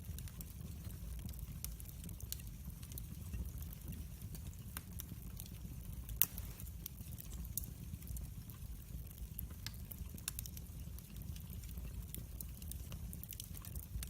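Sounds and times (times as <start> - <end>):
log fire crackling: 0.0 - 14.0
sharp fire pops: 6.1 - 7.7.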